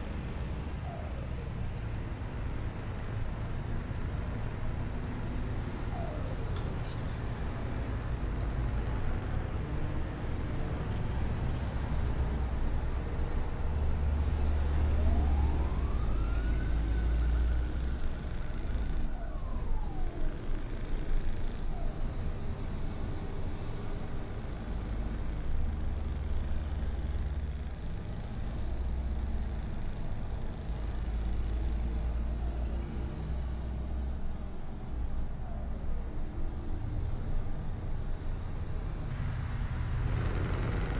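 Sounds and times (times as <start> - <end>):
short air hisses: 6.8 - 7.2.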